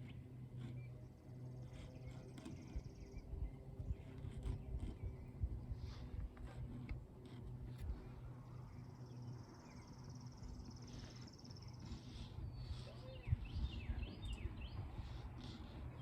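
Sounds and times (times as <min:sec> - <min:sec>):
low steady rumble: 0:00.0 - 0:16.0
birds chirping: 0:08.6 - 0:16.0.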